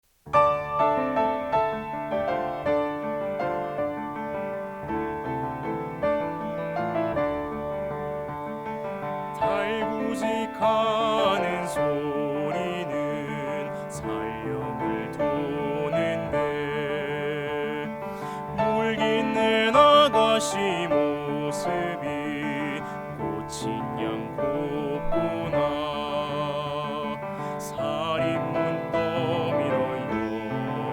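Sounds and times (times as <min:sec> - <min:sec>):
piano: 0:00.0 - 0:30.9
baritone singing with vibrato: 0:09.2 - 0:30.9.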